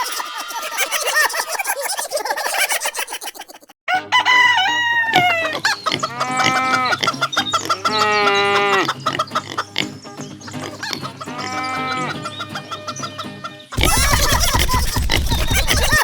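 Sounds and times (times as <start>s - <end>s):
chicken clucking: 0.0s - 16.0s
rooster crowing: 3.9s - 7.0s
rapid clicking: 13.8s - 16.0s.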